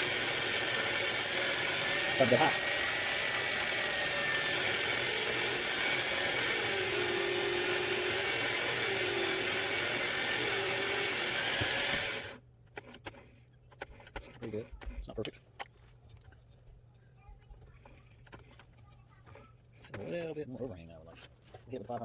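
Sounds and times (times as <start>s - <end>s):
small power tool running: 0.0s - 12.4s.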